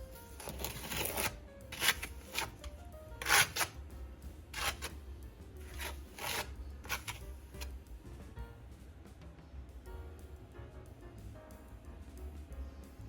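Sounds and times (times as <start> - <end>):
faint music: 0.0 - 13.0
trowel scraping filler on wall: 0.4 - 3.8, 4.5 - 4.9, 5.6 - 7.7.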